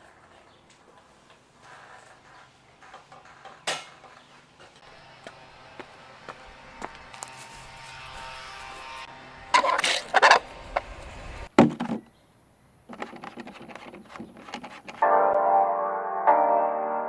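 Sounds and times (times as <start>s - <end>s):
clicks and rustling: 9.6s - 12.1s, 12.9s - 15.0s
background music: 15.0s - 17.0s.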